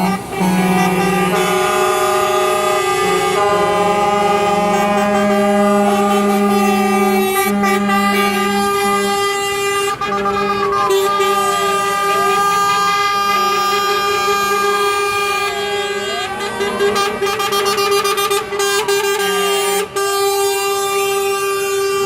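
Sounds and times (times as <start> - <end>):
truck air horns blaring: 0.0 - 22.0
siren wailing: 10.4 - 19.7.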